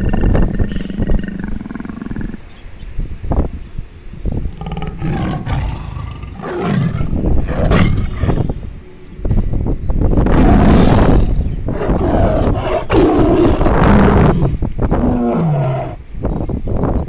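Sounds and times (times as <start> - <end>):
animal roaring: 0.0 - 2.4, 4.5 - 8.5, 10.3 - 16.0
animal grunts: 0.0 - 2.5, 4.5 - 8.5, 10.3 - 16.0.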